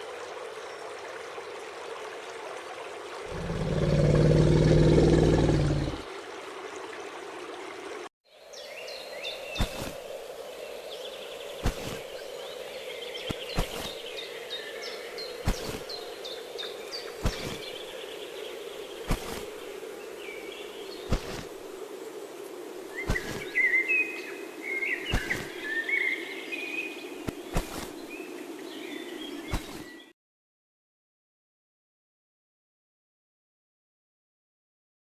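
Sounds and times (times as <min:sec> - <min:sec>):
small birds chirping: 0:03.3 - 0:06.0, 0:08.4 - 0:21.6, 0:23.0 - 0:30.1.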